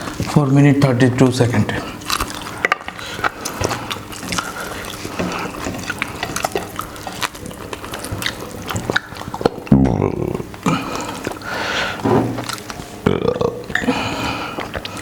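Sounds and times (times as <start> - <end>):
wet chewing and mouth smacking: 0.0 - 9.7, 10.4 - 15.0
loud burp: 13.0 - 13.9.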